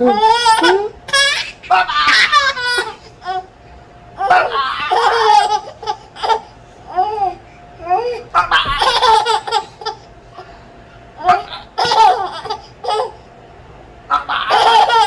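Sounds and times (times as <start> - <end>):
baby giggling: 0.0 - 3.4, 4.2 - 7.3, 7.9 - 10.1, 11.2 - 13.2, 14.1 - 15.0.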